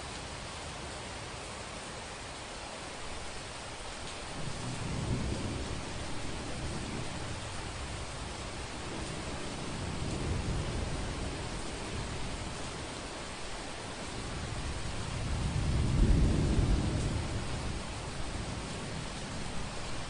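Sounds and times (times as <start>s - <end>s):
heavy rain hissing: 0.0s - 20.0s
thunder rumbling: 4.2s - 20.0s.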